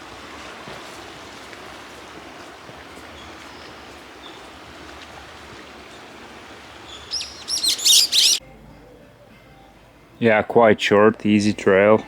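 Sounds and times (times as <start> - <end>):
steady outdoor hiss: 0.0 - 12.0
songbird singing: 6.8 - 8.4.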